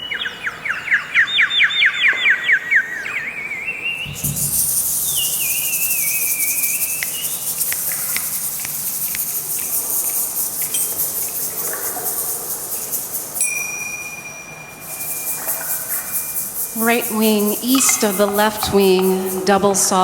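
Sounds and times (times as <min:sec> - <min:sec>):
steady high whistled tone: 0:01.2 - 0:08.2, 0:13.4 - 0:19.6
high shimmering hiss: 0:04.0 - 0:20.0.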